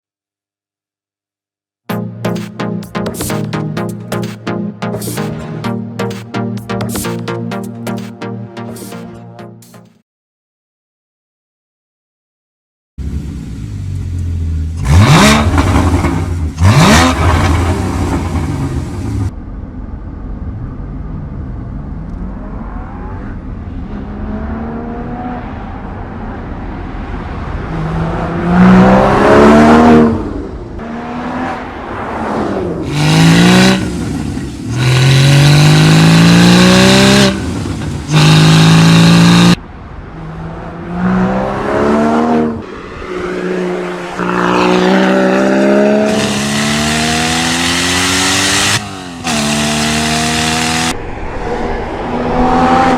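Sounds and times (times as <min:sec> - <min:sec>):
sports car engine revving: 0:13.0 - 0:19.3, 0:32.8 - 0:51.0.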